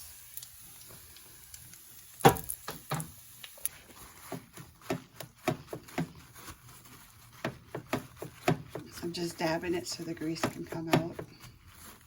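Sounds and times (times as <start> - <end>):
paper towel tapping on kitchen surface: 4.2 - 6.3, 7.3 - 9.0, 10.2 - 11.5.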